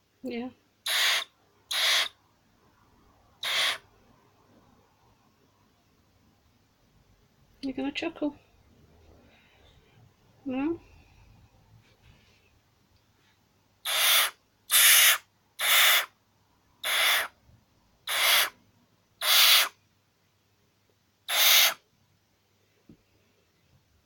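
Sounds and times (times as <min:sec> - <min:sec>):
owl hissing: 0:00.8 - 0:02.2, 0:03.4 - 0:03.9, 0:13.8 - 0:16.2, 0:16.8 - 0:17.4, 0:18.0 - 0:18.6, 0:19.2 - 0:19.8, 0:21.3 - 0:21.8.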